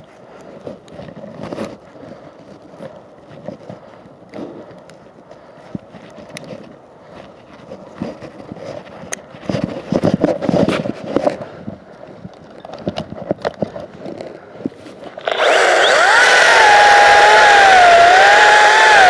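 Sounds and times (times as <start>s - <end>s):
electric chainsaw whining: 15.2s - 19.0s.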